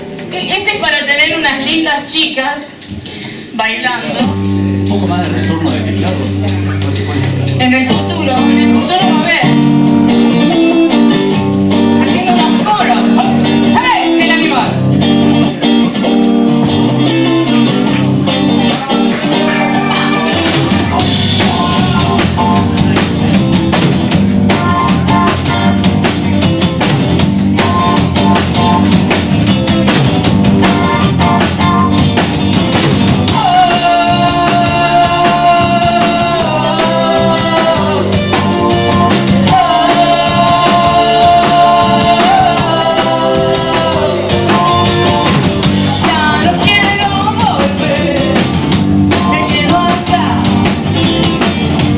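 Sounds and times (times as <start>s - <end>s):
rock band playing live: 0.0s - 51.9s
steady drum beat: 4.3s - 51.9s
long held sliding melody line: 19.4s - 22.7s.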